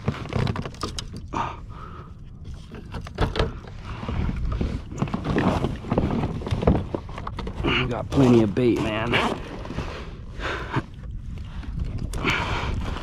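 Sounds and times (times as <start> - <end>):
wind rumble on microphone: 0.0 - 13.0
water slapping against hull: 2.4 - 13.0.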